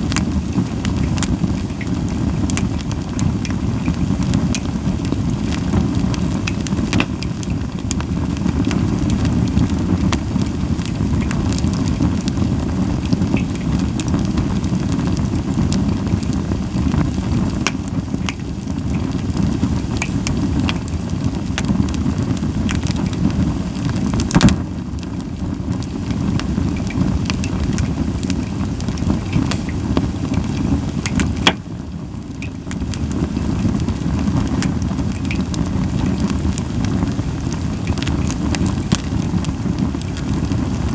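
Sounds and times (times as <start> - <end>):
campfire crackling and popping: 0.0 - 40.9
fire low rumble: 0.0 - 40.9.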